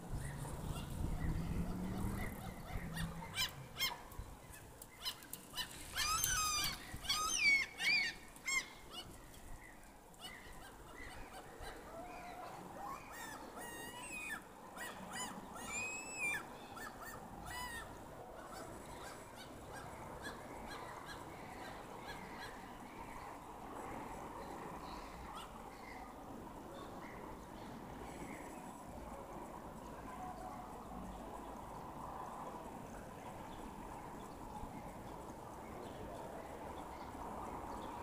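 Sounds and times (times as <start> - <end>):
birds calling: 0.1 - 23.2.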